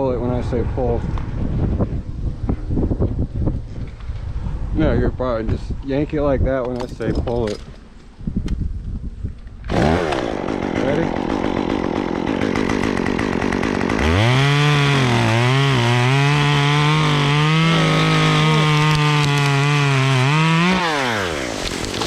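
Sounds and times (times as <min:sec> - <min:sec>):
chainsaw revving through a cut: 0:09.7 - 0:22.0.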